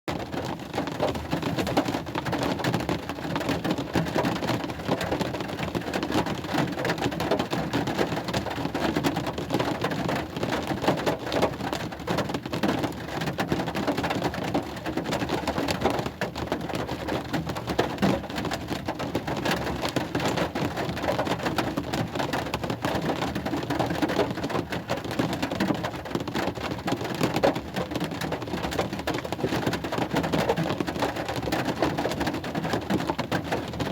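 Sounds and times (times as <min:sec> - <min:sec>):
steady rain falling: 0:00.1 - 0:33.9.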